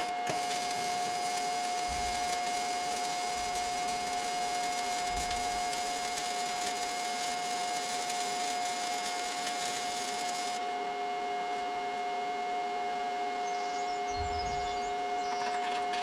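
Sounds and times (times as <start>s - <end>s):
machine whining: 0.0s - 16.0s.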